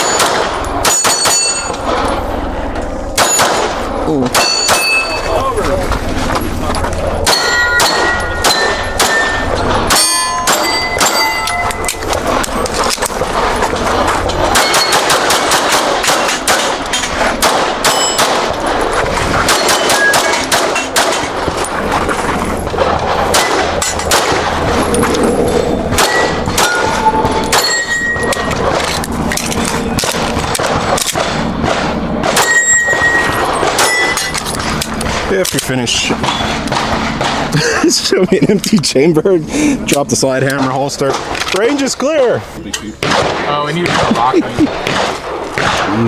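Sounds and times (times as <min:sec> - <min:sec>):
pistol shots: 0:00.0 - 0:02.5, 0:03.2 - 0:05.4, 0:07.0 - 0:37.6, 0:43.0 - 0:46.0
steel targets ringing: 0:00.0 - 0:05.7, 0:07.2 - 0:34.7.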